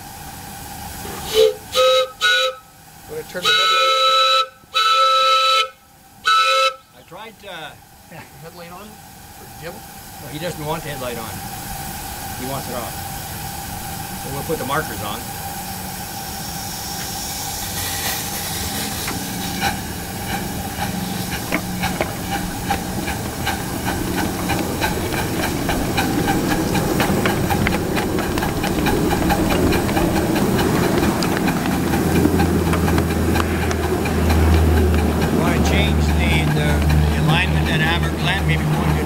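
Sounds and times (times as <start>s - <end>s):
steam hissing from model locomotive: 0.0s - 39.0s
low hum: 8.8s - 39.0s
sharp clicks and ticks: 18.8s - 39.0s.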